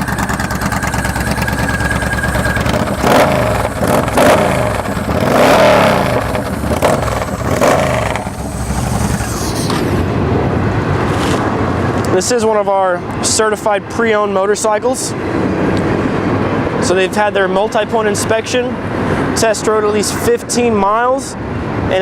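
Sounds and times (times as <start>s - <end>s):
motorcycle engine rumbling and revving: 0.0s - 12.1s.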